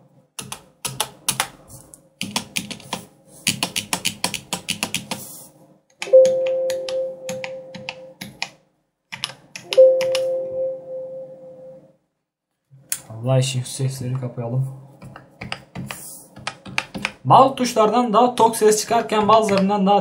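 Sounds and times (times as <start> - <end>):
computer chime ringing: 6.0 - 8.2, 9.7 - 11.9.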